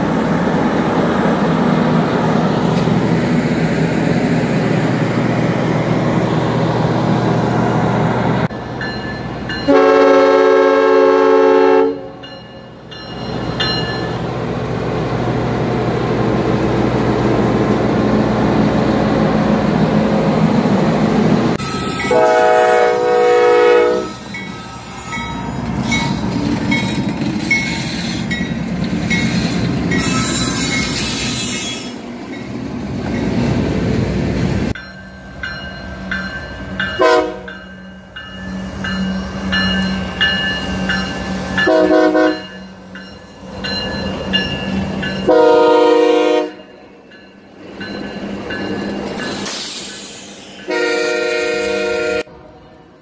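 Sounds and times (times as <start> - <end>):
diesel trains rumbling: 0.0 - 53.0
locomotive horn blasts: 9.7 - 12.2, 21.6 - 24.4, 37.0 - 37.5, 41.6 - 42.5, 45.3 - 46.7, 50.7 - 52.3.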